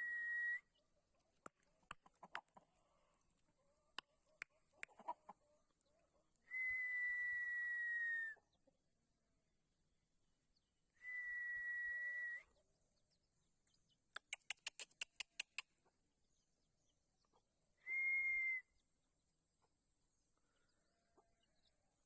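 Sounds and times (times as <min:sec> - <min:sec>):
sharp clicks: 0:14.1 - 0:15.7.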